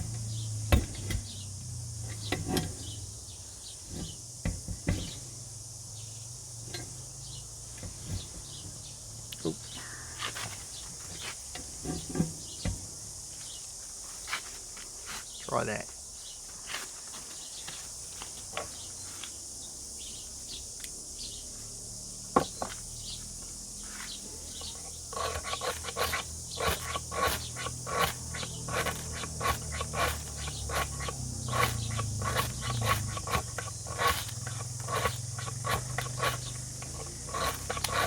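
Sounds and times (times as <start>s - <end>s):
metal knife scraping: 24.7s - 38.0s.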